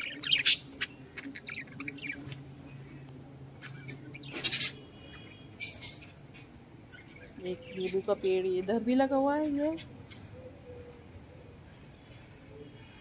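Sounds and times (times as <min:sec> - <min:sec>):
small birds chirping and squawking: 0:00.0 - 0:13.0.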